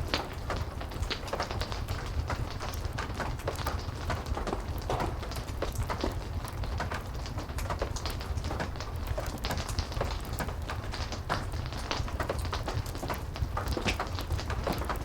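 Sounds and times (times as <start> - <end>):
heavy rain falling: 0.0 - 15.0
wood fire crackling: 0.0 - 15.0.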